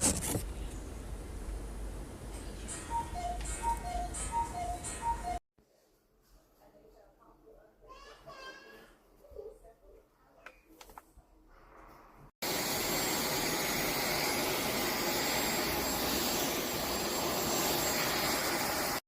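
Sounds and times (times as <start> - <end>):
vacuum cleaner running: 12.4 - 19.0.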